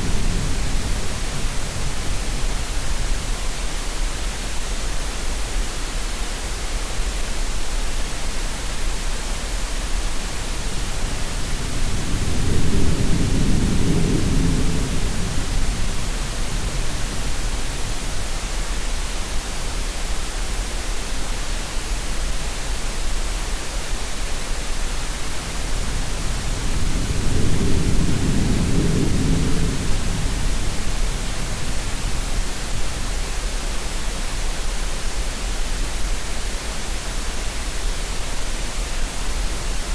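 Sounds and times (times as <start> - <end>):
green noise hiss: 0.0 - 39.9
deep swells of surging water: 25.0 - 33.6.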